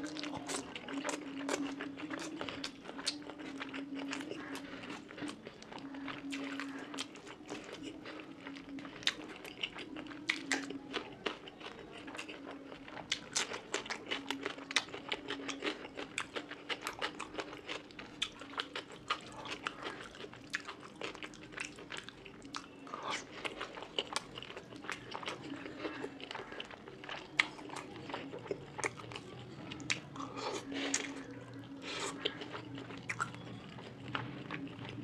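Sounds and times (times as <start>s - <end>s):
wet mouth chewing clicks: 32.0s - 35.0s.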